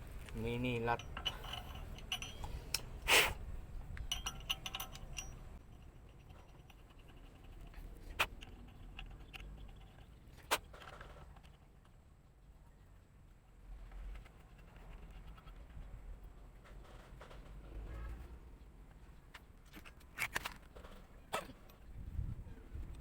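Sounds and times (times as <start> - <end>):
metal tools clinking: 0.5 - 3.0, 4.1 - 10.1.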